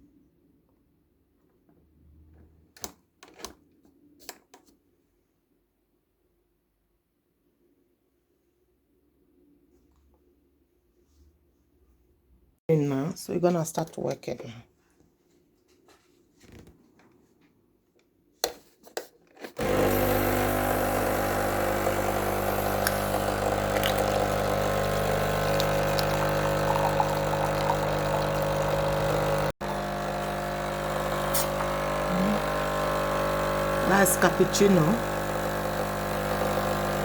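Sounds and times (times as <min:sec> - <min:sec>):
coffee machine pump humming: 0:19.6 - 0:37.0.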